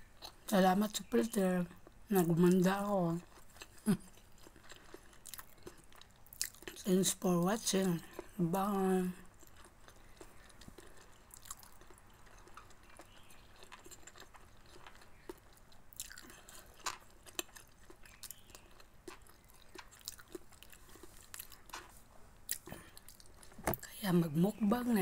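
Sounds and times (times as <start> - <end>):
person chewing: 1.8 - 6.8, 9.2 - 23.9.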